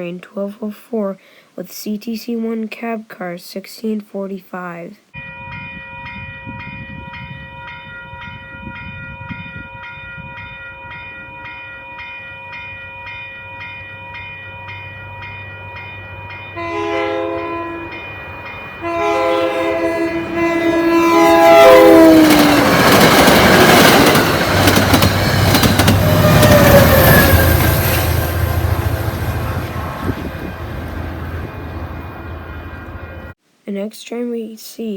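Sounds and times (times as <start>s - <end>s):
crossing warning bell ringing: 5.2s - 33.3s
train horn chime blasts: 15.8s - 22.3s
train wheels rushing past: 16.7s - 33.3s.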